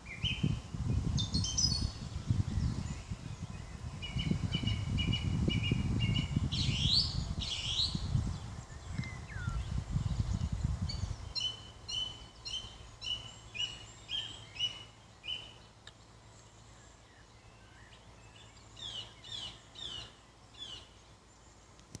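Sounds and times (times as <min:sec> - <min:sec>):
bird whistling song: 0:00.1 - 0:15.6.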